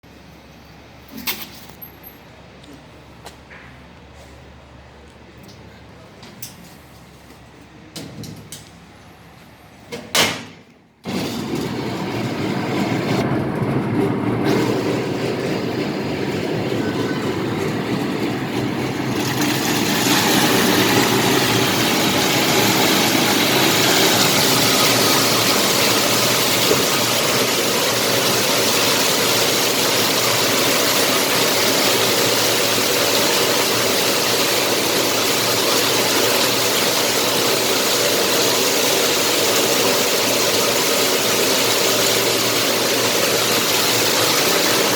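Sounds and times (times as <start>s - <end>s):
peeling machine running: 11.0s - 44.9s
loud steady hiss: 15.9s - 44.9s.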